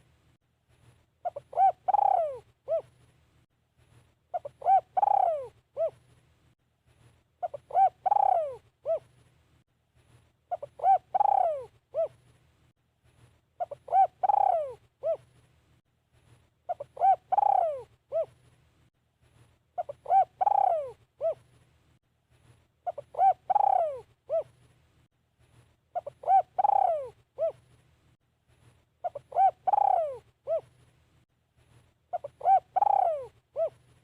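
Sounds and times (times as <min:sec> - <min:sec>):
dove cooing: 0:01.2 - 0:03.0, 0:04.3 - 0:06.1, 0:07.4 - 0:09.1, 0:10.5 - 0:12.2, 0:13.6 - 0:15.3, 0:16.7 - 0:18.4, 0:19.8 - 0:21.5, 0:22.8 - 0:24.6, 0:25.9 - 0:27.7, 0:29.0 - 0:30.7, 0:32.1 - 0:33.9.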